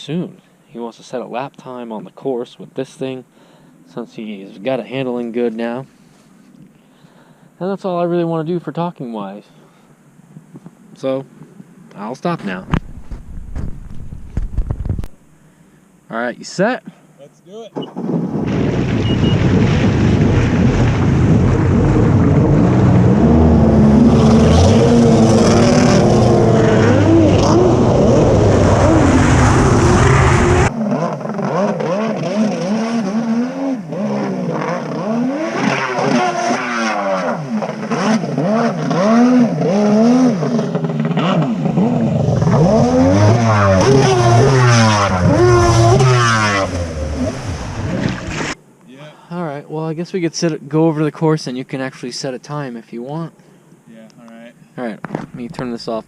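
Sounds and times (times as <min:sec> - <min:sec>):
jet ski engine revving: 0:20.0 - 0:48.6.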